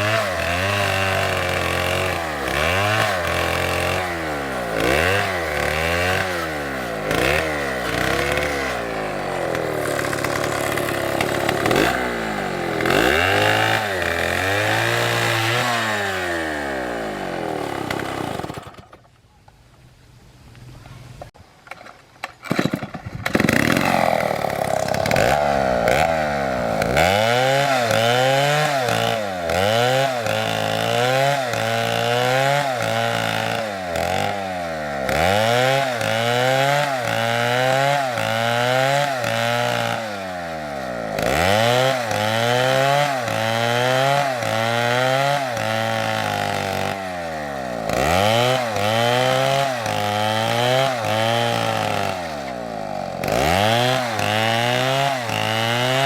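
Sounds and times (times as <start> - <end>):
chainsaw revving and cutting wood: 0.0 - 19.0, 22.5 - 56.0.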